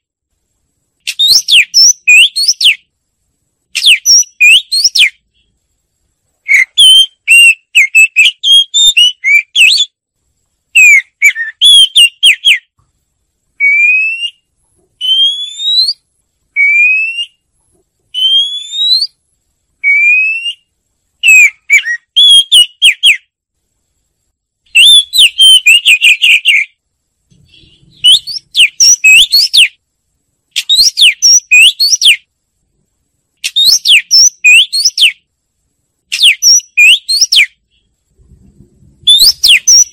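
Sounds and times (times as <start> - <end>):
bird singing whistled phrases: 1.1 - 2.9, 3.8 - 5.2, 6.4 - 10.0, 10.7 - 12.7, 13.6 - 16.0, 16.6 - 17.4, 18.1 - 19.2, 19.8 - 23.3, 24.7 - 26.8, 27.4 - 29.8, 30.6 - 32.3, 33.4 - 35.2, 36.1 - 37.8, 39.1 - 39.9
clear rising whistles: 13.6 - 16.0, 18.2 - 19.2, 39.1 - 39.9.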